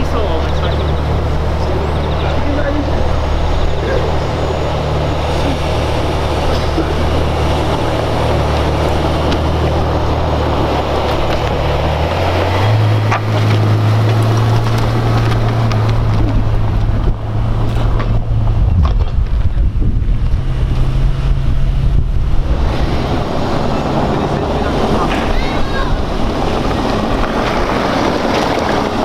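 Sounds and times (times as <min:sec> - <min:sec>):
background rush: 0:00.0 - 0:29.0
car engine idling: 0:00.0 - 0:29.0.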